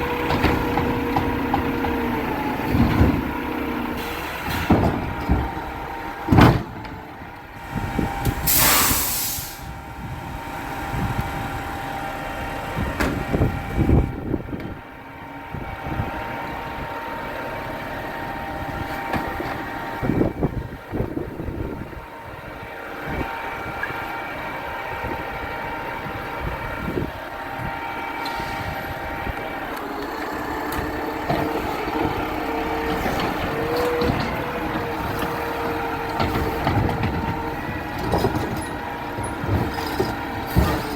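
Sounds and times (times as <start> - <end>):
clunks and bangs: 0.0 - 3.4, 4.0 - 7.4, 12.9 - 14.8, 30.6 - 40.9
garbage truck engine running: 0.0 - 40.9
air brake hiss: 8.3 - 9.8, 28.2 - 28.8.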